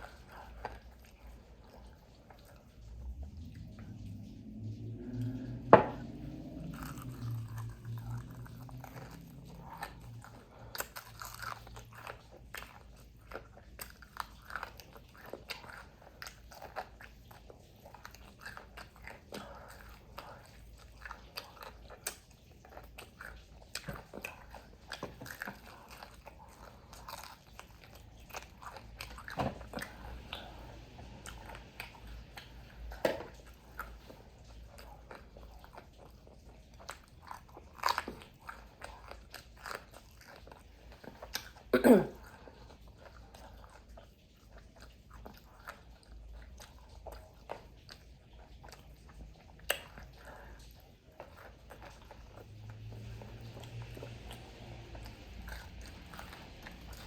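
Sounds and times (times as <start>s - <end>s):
chewing crispy fried food: 0.0s - 57.0s
wet mouth clicks: 5.3s - 10.2s, 49.6s - 50.2s.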